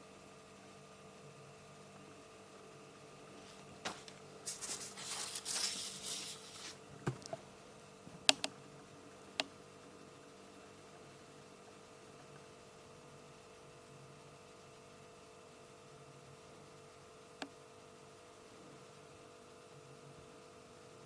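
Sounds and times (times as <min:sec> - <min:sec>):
low steady hum: 0:00.0 - 0:21.0
paper page rustling: 0:03.4 - 0:07.4.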